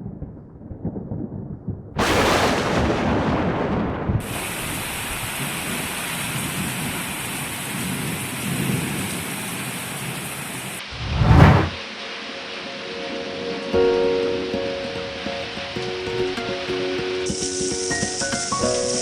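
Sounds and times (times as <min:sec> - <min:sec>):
heavy rain: 0:02.0 - 0:10.8
rolling thunder: 0:11.0 - 0:11.8.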